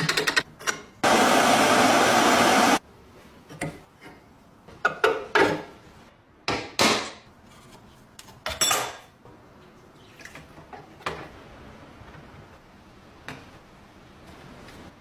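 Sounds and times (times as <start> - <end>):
loud power tool: 1.0 - 2.8.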